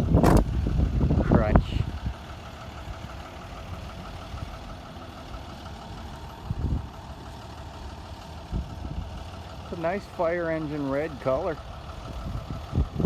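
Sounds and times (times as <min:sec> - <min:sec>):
vehicle engine idling: 0:00.0 - 0:13.0
short thump: 0:00.1 - 0:00.6.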